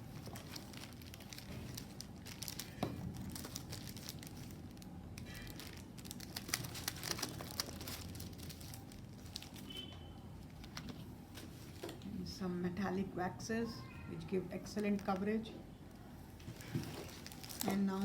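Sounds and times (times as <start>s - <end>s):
packaging crinkling: 0.0s - 9.8s, 16.4s - 18.0s.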